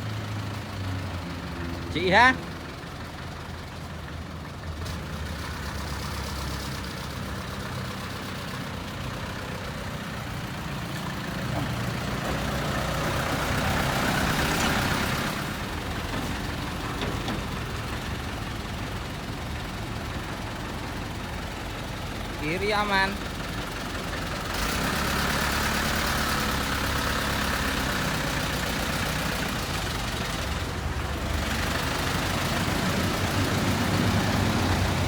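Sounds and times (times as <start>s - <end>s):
truck engine running: 0.0s - 35.0s.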